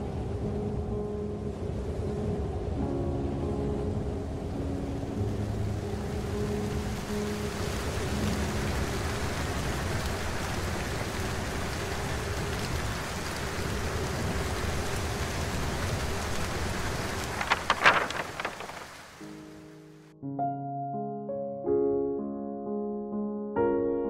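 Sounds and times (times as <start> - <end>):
heavy rain hissing: 1.7 - 19.9.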